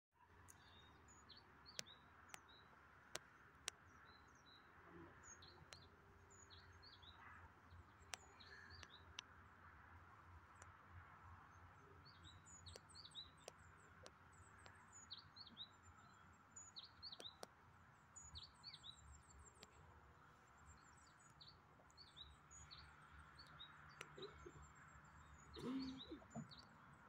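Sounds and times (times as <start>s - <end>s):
small birds chirping: 0.3s - 10.8s, 11.4s - 27.0s
faint background hush: 25.5s - 26.6s.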